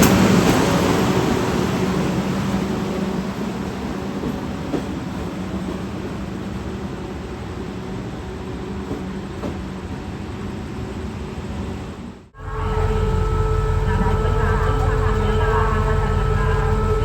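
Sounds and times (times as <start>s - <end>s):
train running on rails: 0.0s - 17.0s.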